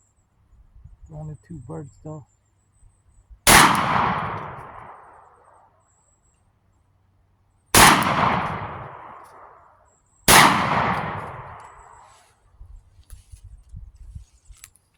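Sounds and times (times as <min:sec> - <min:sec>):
shotgun firing: 0:03.5 - 0:05.2, 0:07.8 - 0:09.6, 0:10.3 - 0:12.1.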